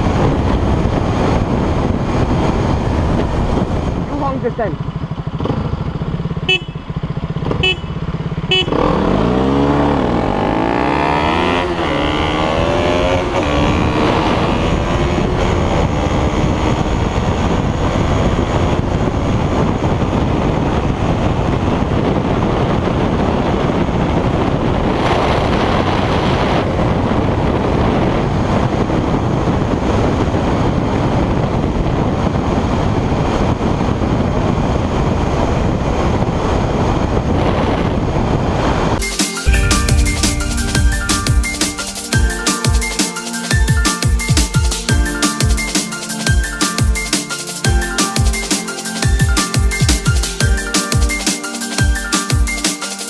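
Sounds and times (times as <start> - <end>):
wind on microphone: 0.0 - 4.9, 11.0 - 42.9
motorcycle engine accelerating: 0.0 - 28.2, 35.3 - 43.0.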